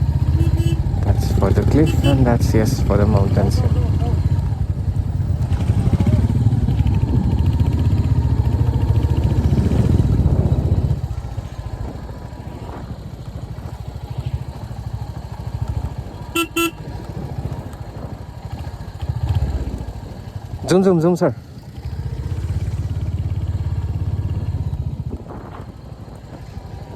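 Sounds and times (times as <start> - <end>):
motorcycle engine running: 0.0 - 26.9
horn toots: 0.2 - 2.5, 16.2 - 16.9.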